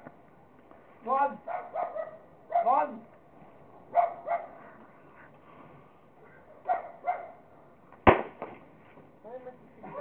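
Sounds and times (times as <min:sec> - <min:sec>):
dog barking: 0:01.4 - 0:02.8, 0:03.9 - 0:04.6, 0:06.2 - 0:07.4.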